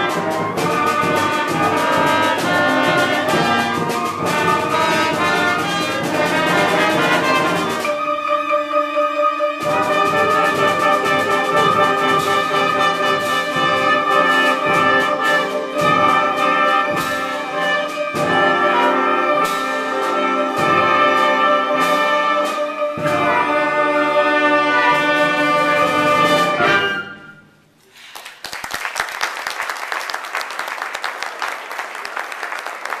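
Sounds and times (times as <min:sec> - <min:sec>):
concert band with brass playing: 0:00.0 - 0:27.6
audience applauding: 0:27.9 - 0:33.0.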